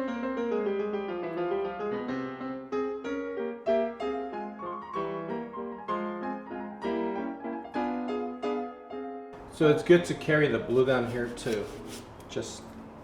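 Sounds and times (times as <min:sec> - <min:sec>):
soft piano music: 0:00.0 - 0:09.6.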